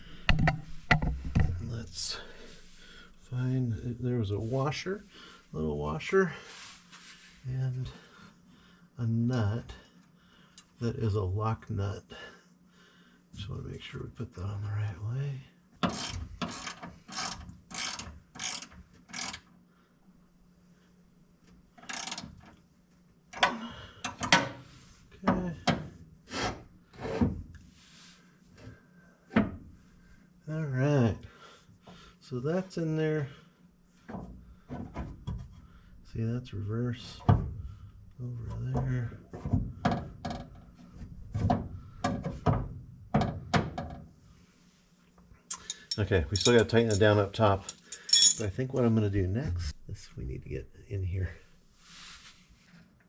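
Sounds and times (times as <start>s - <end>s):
hand ratchet clicking: 15.9s - 19.4s, 21.8s - 22.3s.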